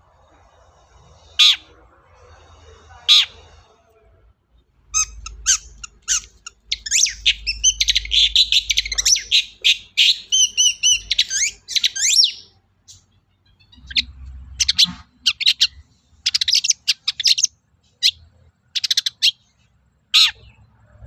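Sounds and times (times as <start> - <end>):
shrike chirping and trilling: 1.2 - 1.8, 4.9 - 19.5.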